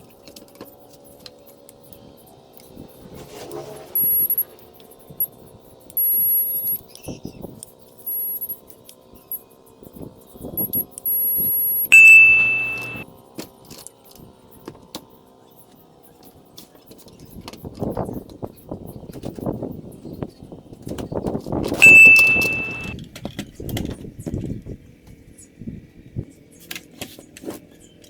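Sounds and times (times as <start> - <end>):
high-pitched whines: 11.9 - 13.0, 21.8 - 23.0
piercing buzzer beep: 11.9 - 13.0, 21.8 - 23.0.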